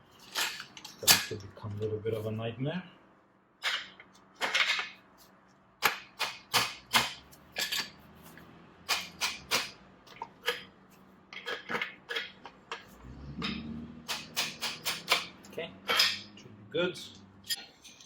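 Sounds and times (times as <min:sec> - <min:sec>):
hand tools clicking on metal: 0:08.9 - 0:10.7, 0:11.4 - 0:16.3.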